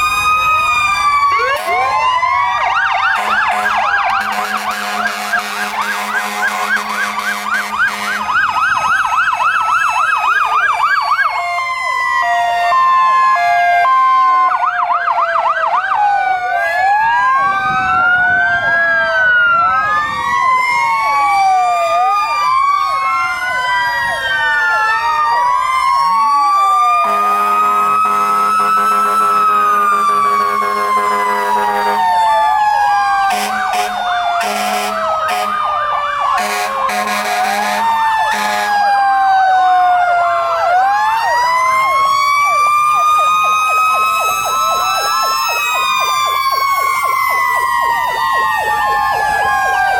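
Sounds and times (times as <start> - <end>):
fire truck sirens wailing: 0.0 - 49.9
low air horn blast: 3.2 - 8.4, 27.0 - 32.0, 33.2 - 35.6, 36.4 - 38.8.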